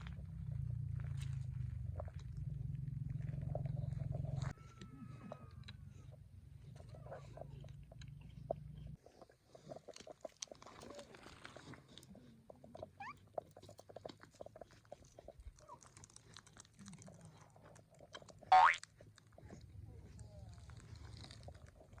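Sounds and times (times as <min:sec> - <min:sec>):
kitten chewing and biting: 0:05.7 - 0:19.7.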